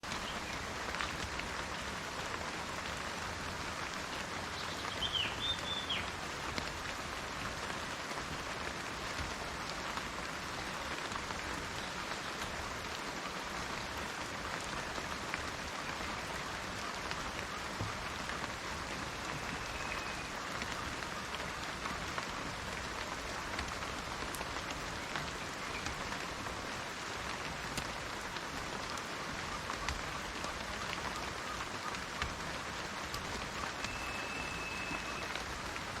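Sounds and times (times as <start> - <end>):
rain falling on plants: 0.0 - 36.0
bird chirping: 33.8 - 35.2.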